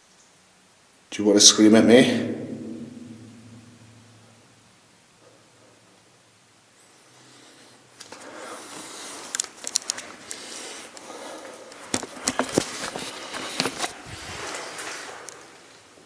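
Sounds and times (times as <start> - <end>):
rustling and crunching: 8.0 - 16.0.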